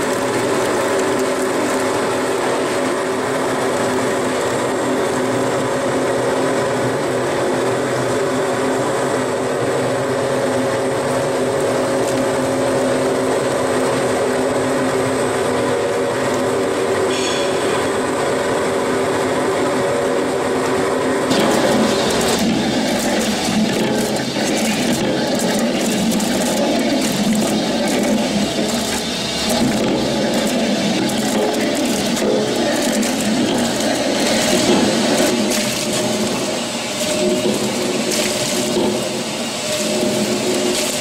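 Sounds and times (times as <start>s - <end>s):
juice pouring into steel tank: 0.0s - 5.0s, 21.3s - 41.0s
machinery humming with tones: 0.0s - 41.0s.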